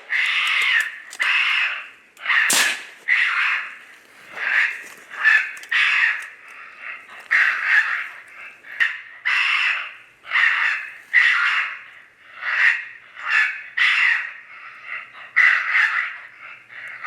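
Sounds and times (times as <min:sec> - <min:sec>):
raccoon call squalls: 0:00.0 - 0:17.0.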